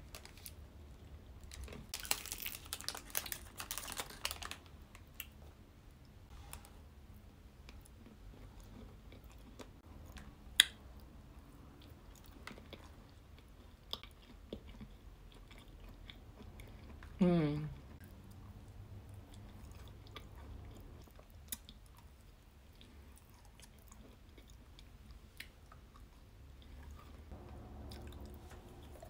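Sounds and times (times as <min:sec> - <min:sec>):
plastic wrapper crinkling: 0:00.0 - 0:00.6, 0:01.4 - 0:05.3
faint chewing: 0:07.6 - 0:10.7, 0:11.7 - 0:29.0.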